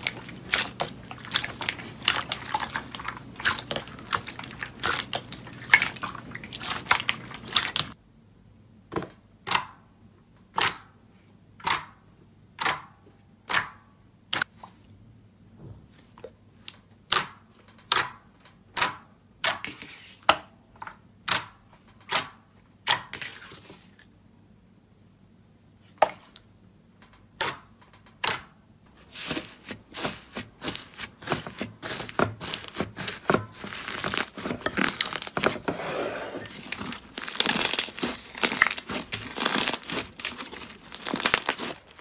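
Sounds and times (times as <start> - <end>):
crunchy slime crackling: 0.0 - 8.0, 29.0 - 35.7, 36.5 - 42.0
slime popping: 0.0 - 8.0, 29.2 - 35.6, 36.6 - 42.0.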